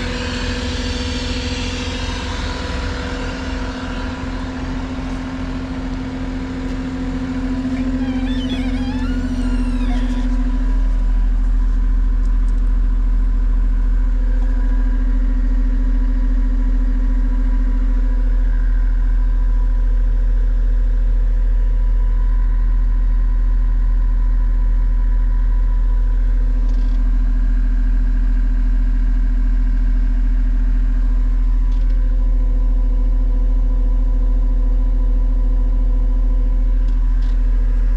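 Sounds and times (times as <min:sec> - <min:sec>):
diesel engine running: 0:00.0 - 0:21.4
wavering squeal: 0:07.4 - 0:11.3.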